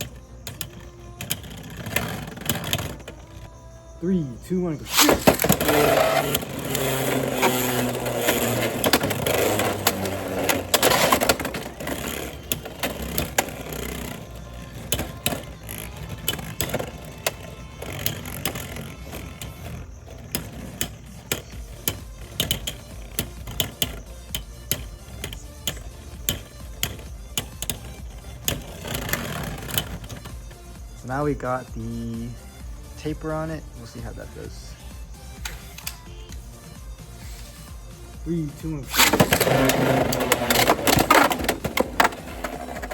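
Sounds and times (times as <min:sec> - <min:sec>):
spinning tops clashing and whirring: 0:00.0 - 0:03.5, 0:04.8 - 0:31.0, 0:38.8 - 0:42.9
plastic clicks and knocks: 0:04.9 - 0:30.6, 0:38.9 - 0:42.9.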